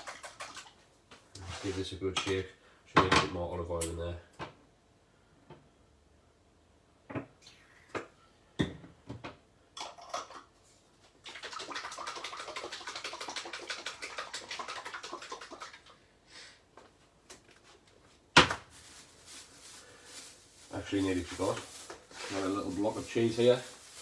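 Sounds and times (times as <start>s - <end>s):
container shaken rattling slosh: 0.0s - 0.8s, 11.2s - 15.9s, 18.8s - 24.0s.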